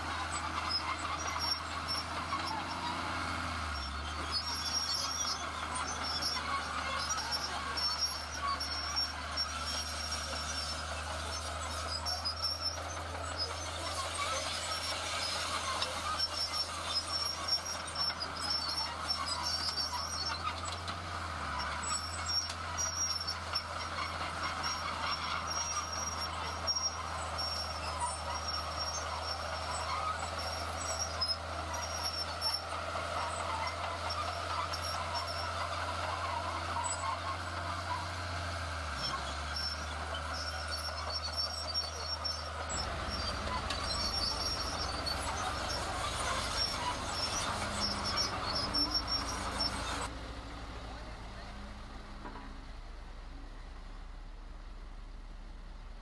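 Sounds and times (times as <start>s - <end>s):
construction machinery engine drone: 0.0s - 56.0s
high thin squeal or beeping: 39.0s - 50.1s.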